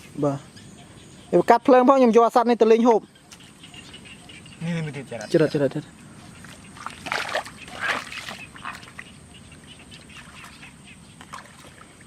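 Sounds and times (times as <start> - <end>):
harsh animal calls: 3.1 - 5.3.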